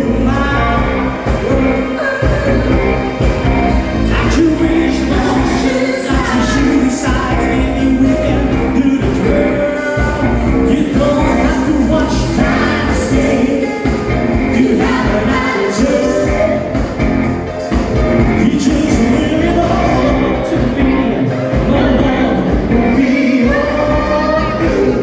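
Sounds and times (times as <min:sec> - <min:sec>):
lead singer singing: 0:00.0 - 0:25.0
live band playing pop-rock: 0:00.0 - 0:25.0.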